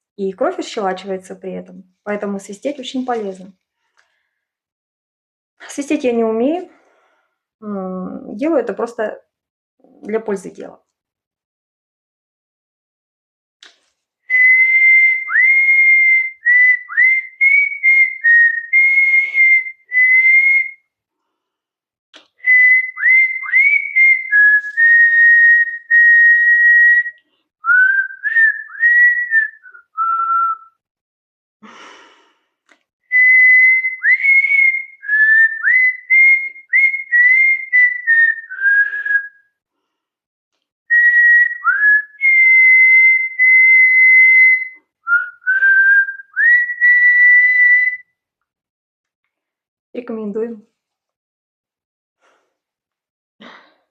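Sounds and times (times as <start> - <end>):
person whistling a tune: 14.3 - 20.9, 22.4 - 30.8, 33.1 - 39.6, 40.9 - 48.2.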